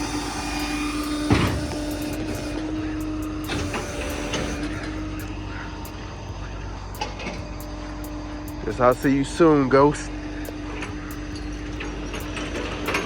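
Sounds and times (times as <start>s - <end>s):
tow truck machinery humming: 0.0s - 13.0s
sharp clunk: 1.1s - 2.6s.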